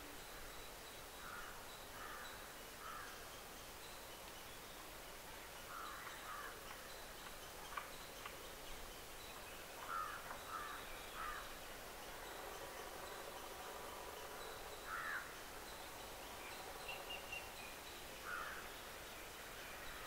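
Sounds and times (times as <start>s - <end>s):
faint bird caws: 1.2s - 3.2s, 5.7s - 6.6s, 9.8s - 11.6s, 14.9s - 15.3s, 18.2s - 18.7s.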